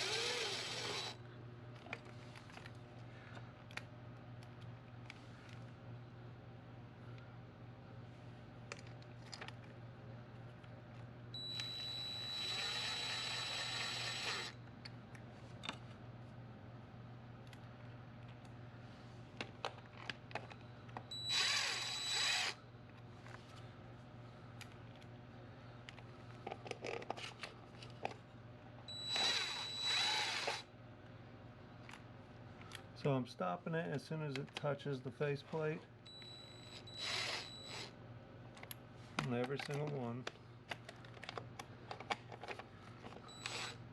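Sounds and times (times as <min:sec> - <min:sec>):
power drill spinning bolts: 0:00.0 - 0:01.2, 0:11.6 - 0:14.5, 0:21.3 - 0:22.6, 0:29.1 - 0:30.6, 0:36.7 - 0:37.9, 0:43.3 - 0:43.8.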